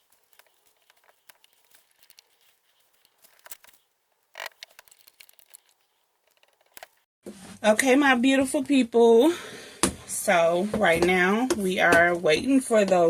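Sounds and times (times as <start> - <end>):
rustle: 0.0 - 7.0
clicks and crackles of handling: 0.0 - 7.1.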